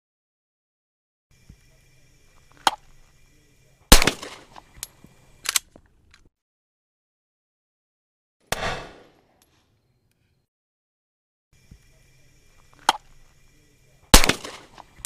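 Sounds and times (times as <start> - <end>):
loud gunshot: 3.9 - 4.6, 8.5 - 9.2, 14.1 - 14.8
light gun clicks: 4.0 - 6.3
sharp metallic click: 4.0 - 6.3.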